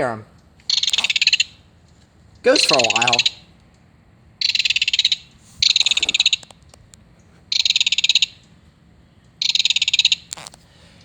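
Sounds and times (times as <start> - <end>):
recorded bird rattle call: 0.7 - 1.8, 2.4 - 3.5, 4.4 - 6.9, 7.5 - 8.6, 9.4 - 10.6.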